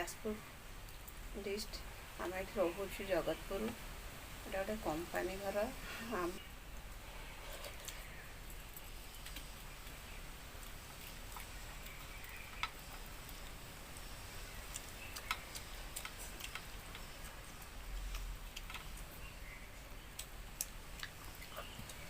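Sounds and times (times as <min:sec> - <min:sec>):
low steady hum: 0:00.0 - 0:22.0
person eating and chewing: 0:07.2 - 0:22.0.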